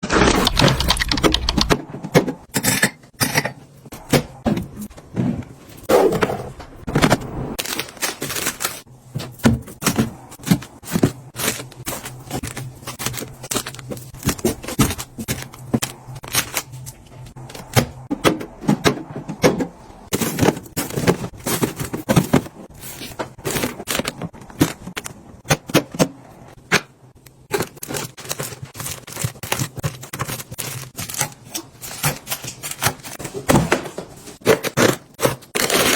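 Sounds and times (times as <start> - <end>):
snack packaging being handled: 10.5 - 17.7, 27.6 - 33.5.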